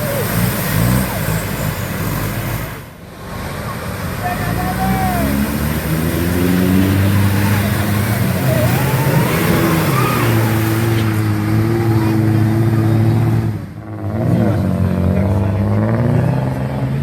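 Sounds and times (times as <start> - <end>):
engine revving high: 3.8 - 17.0.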